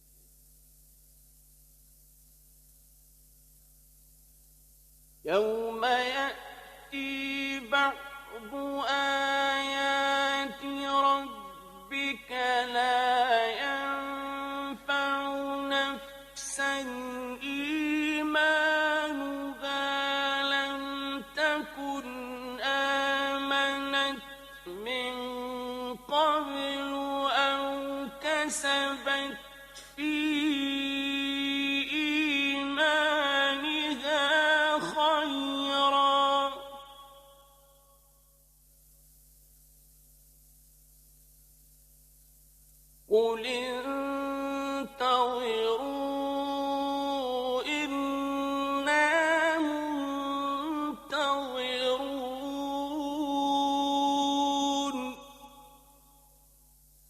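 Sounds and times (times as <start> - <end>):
man chanting recitation: 5.3 - 37.4, 43.1 - 55.7.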